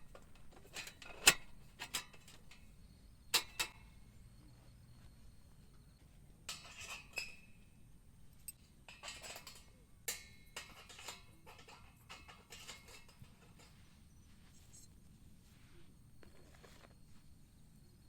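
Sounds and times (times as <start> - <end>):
camp gear clinking and knocking: 0.0 - 4.0, 5.0 - 14.3.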